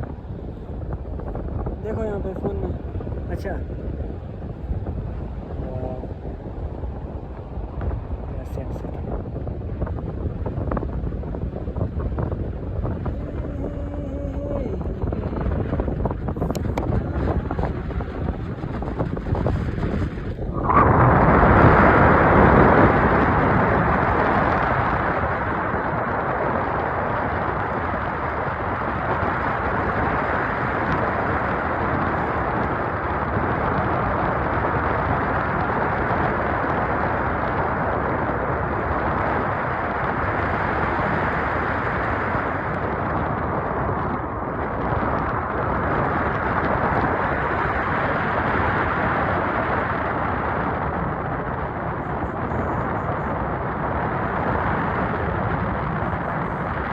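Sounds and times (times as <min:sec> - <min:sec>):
wind rushing over microphone: 0:00.0 - 0:56.9.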